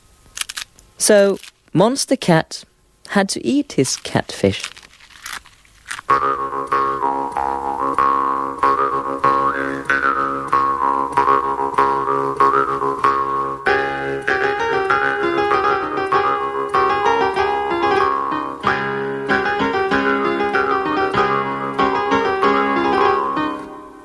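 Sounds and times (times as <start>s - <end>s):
lively piano piece: 6.1s - 24.0s.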